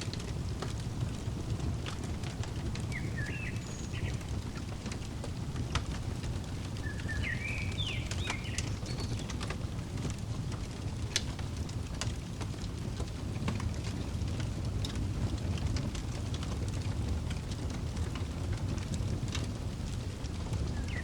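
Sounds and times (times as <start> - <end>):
fireplace crackling: 0.0 - 21.0
bird chirping: 2.9 - 4.3, 6.8 - 9.4, 20.8 - 21.0.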